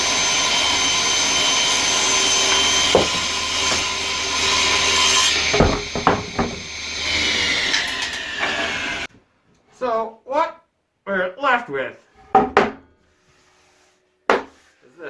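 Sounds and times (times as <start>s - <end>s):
table saw ripping a board: 0.2s - 9.1s
wood knocks: 2.5s - 7.4s.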